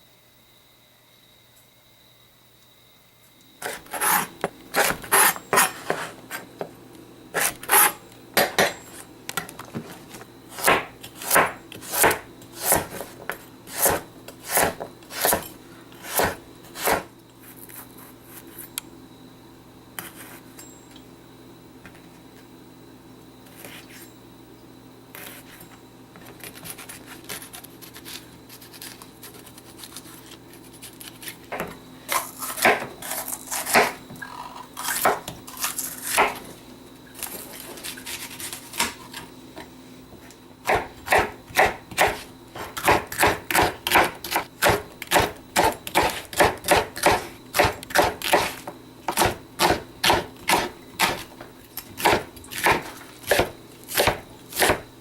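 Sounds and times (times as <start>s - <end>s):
knife chopping on cutting board: 3.6s - 6.4s, 7.4s - 8.8s, 10.5s - 17.1s, 32.5s - 34.0s, 36.0s - 36.5s, 40.6s - 54.9s.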